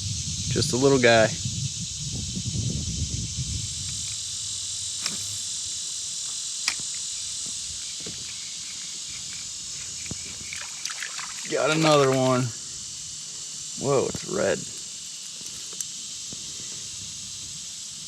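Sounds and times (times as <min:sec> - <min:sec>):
high-pitched insect chorus: 0:00.0 - 0:18.0
short sharp clicks: 0:05.0 - 0:05.5.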